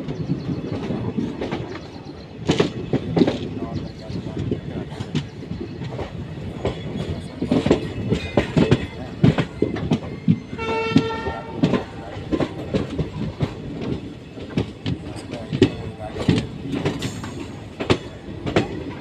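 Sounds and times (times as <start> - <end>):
train wheels clacking: 0.0 - 19.0
train horn: 10.5 - 12.4.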